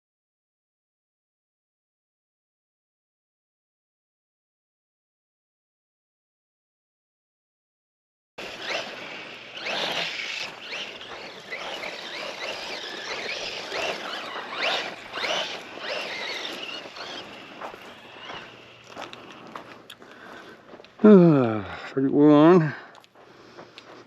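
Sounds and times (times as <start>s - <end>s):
electric motor whining: 8.4s - 19.9s.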